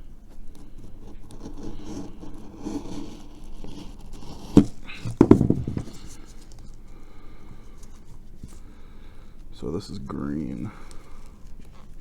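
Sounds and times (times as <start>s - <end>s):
scraping and rustling of pieces: 0.3s - 12.0s
sharp knocks: 5.1s - 6.1s.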